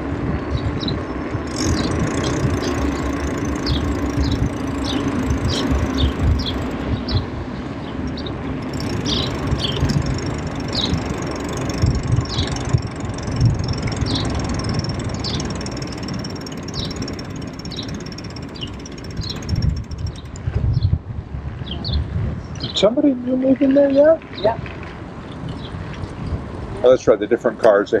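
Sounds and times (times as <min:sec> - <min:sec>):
bicycle tyres rolling: 0:00.0 - 0:20.9
wind rumble on microphone: 0:00.0 - 0:27.0.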